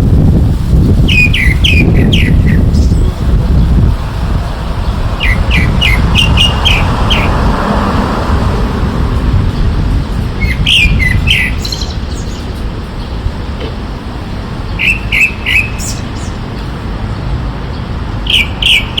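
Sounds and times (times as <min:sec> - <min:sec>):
bird chirping: 0:01.0 - 0:07.6, 0:09.5 - 0:13.4, 0:14.6 - 0:16.7, 0:17.7 - 0:19.0
low rumble: 0:01.6 - 0:13.6.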